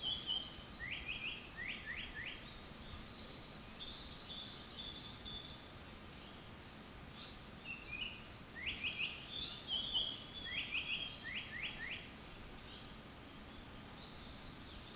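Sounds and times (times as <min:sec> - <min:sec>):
bird whistling song: 0:00.0 - 0:05.6, 0:07.2 - 0:12.8
faint background hiss: 0:00.0 - 0:14.9.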